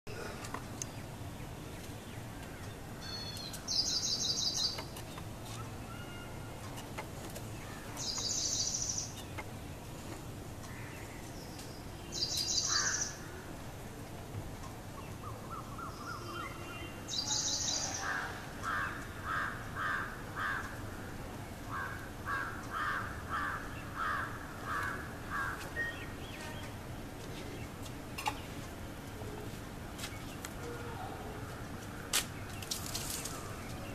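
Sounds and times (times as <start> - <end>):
outdoor background noise: 0.1 - 33.9
repeated bird call notes: 10.6 - 13.2.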